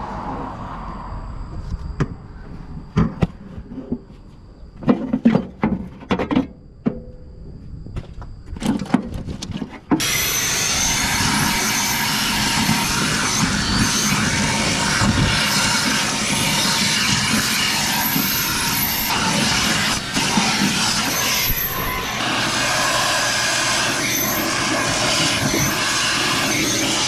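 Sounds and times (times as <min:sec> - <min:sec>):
loud steady noise: 0:10.0 - 0:27.0.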